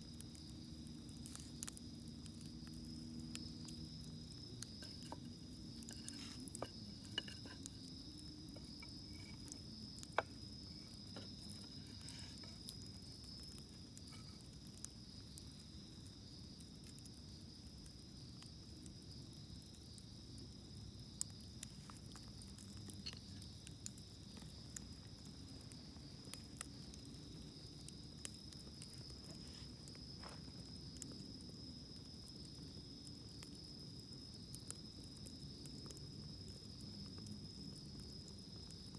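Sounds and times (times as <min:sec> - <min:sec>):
campfire crackling and popping: 0:00.0 - 0:38.9
high-pitched insect chorus: 0:00.0 - 0:38.9.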